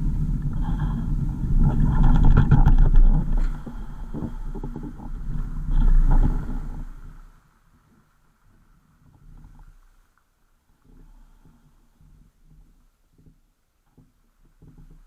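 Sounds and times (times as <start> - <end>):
vehicle rumbling: 0.0 - 7.5
knocks and rattles: 1.5 - 6.8.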